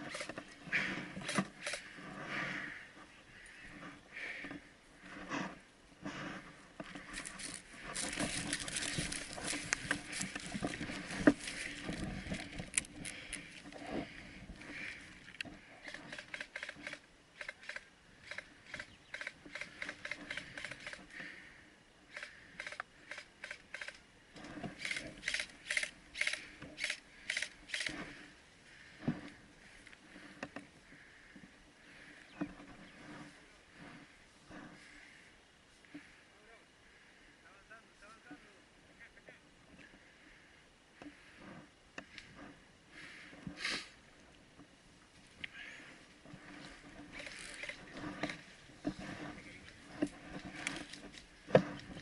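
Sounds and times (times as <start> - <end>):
vegetation rustling against clothing: 0.0 - 21.4, 31.8 - 35.8, 42.3 - 52.0
footsteps crunching through dry brush: 7.0 - 15.0, 46.1 - 52.0.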